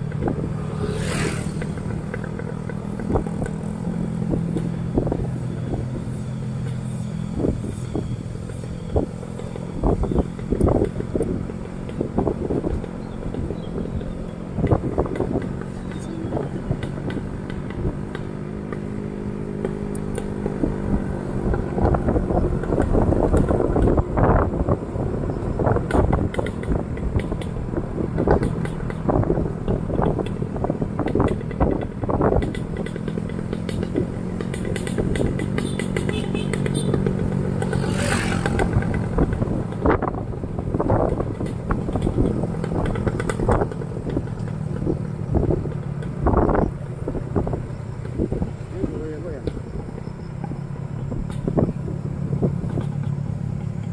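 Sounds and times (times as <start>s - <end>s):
motorcycle engine running: 0.0s - 53.9s
rattles and knocks from bike: 0.0s - 53.9s
irregular rattling and knocks: 25.6s - 46.4s.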